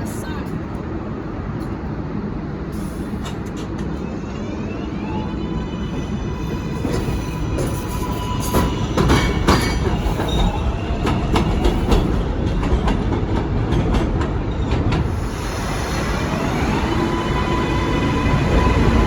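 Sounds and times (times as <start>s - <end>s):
train low rumble: 0.0s - 19.0s
train wheels clicking on rail joints: 2.8s - 4.0s, 6.5s - 19.0s.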